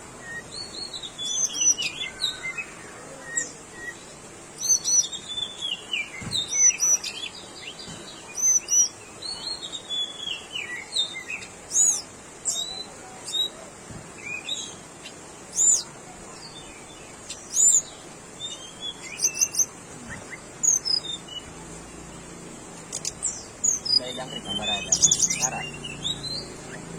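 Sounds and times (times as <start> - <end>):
bird singing whistled notes: 0.2 - 7.8, 17.3 - 21.5, 22.9 - 26.9.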